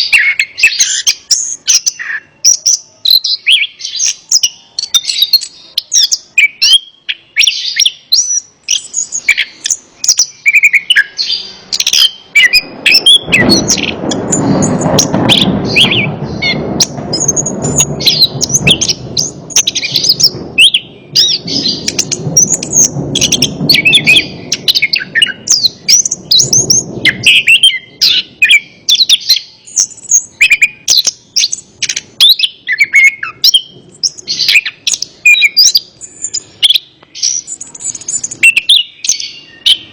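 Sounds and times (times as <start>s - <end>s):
thrush singing high chirps: 0.0s - 39.9s
low rushing noise: 11.1s - 30.4s.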